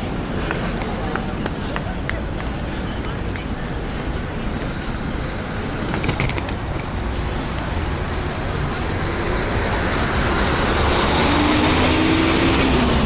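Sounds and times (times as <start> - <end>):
road noise rumble: 0.0 - 13.0.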